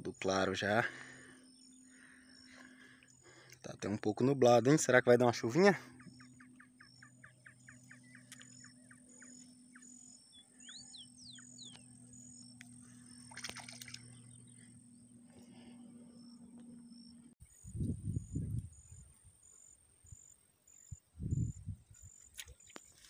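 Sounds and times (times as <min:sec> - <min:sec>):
faint low hum: 0:00.0 - 0:22.2
whistled bird notes gliding: 0:05.6 - 0:20.2.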